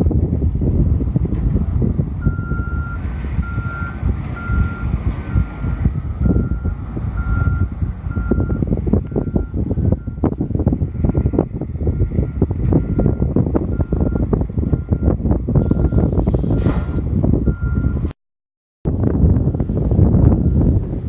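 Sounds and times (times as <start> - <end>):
low engine rumble: 0.0 - 18.1
wind buffeting microphone: 0.0 - 18.1, 18.9 - 21.0
backup alarm beeping: 2.2 - 10.4, 12.0 - 18.0.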